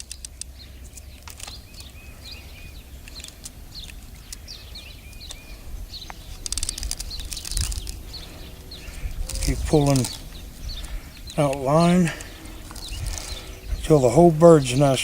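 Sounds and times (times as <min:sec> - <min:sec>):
small birds chirping: 0:00.0 - 0:15.0
steady low rumble: 0:00.0 - 0:15.0
rapid clicking: 0:06.0 - 0:08.2.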